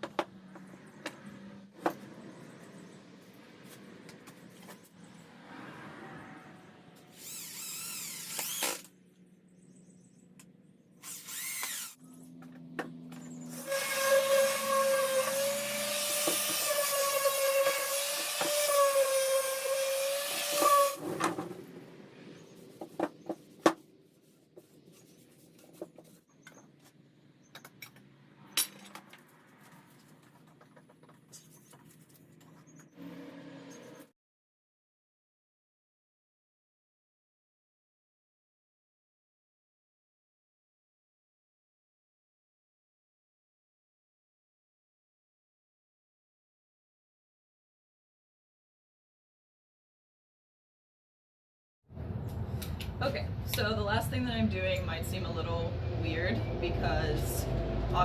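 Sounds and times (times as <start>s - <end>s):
power tool bursts: 7.2s - 8.9s, 11.0s - 12.0s, 13.5s - 21.0s.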